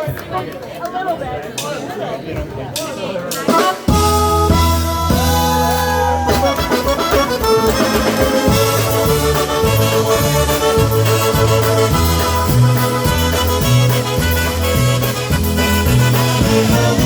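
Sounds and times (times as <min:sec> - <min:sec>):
polka band music: 0:03.2 - 0:17.0
accordion: 0:03.4 - 0:17.0
bass alternating beat: 0:03.9 - 0:17.0.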